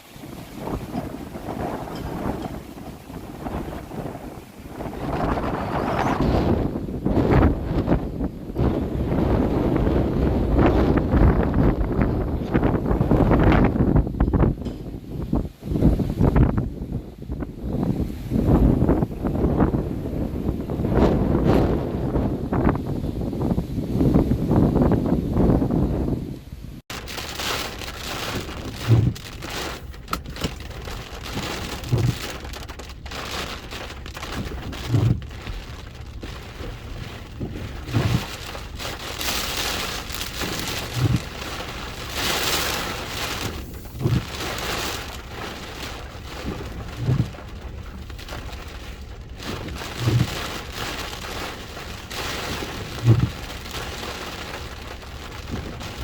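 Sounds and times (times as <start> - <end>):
heavy rain: 0.0 - 25.5, 26.8 - 56.0
strong wind: 0.0 - 56.0
short low thump: 28.3 - 30.8.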